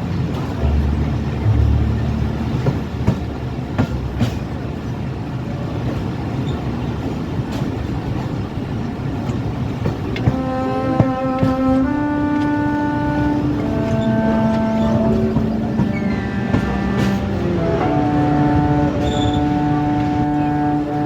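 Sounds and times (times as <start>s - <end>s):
steady pitched tone: 0.0s - 4.5s
train rumbling on track: 0.0s - 21.0s
wheels clicking over rail joints: 0.0s - 21.0s.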